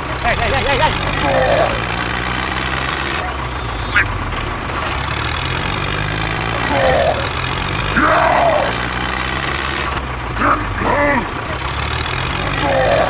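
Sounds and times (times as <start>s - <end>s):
tractor engine idling: 0.0s - 13.0s
squeaky voice-like sounds: 3.1s - 4.1s.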